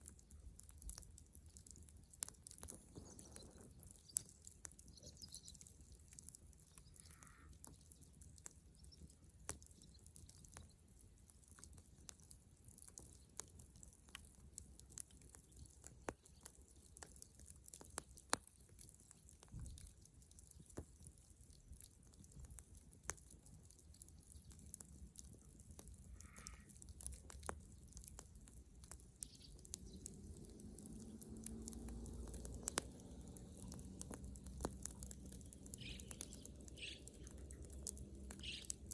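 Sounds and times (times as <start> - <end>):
bonfire crackling and popping: 0.0 - 38.9
bird chirping faintly: 29.2 - 34.1, 34.9 - 38.9.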